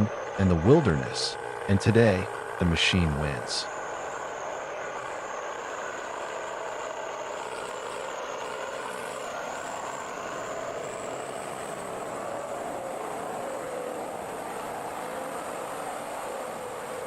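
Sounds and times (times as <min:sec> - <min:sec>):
thin high whine: 0:00.0 - 0:17.0
truck engine running under load: 0:00.0 - 0:17.0.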